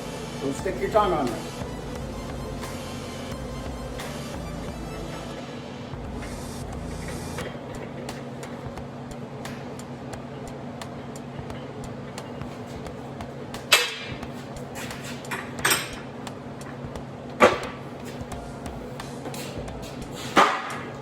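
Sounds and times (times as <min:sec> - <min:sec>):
machine hum: 0:00.0 - 0:21.0
sharp knocks: 0:17.4 - 0:18.4, 0:19.0 - 0:21.0.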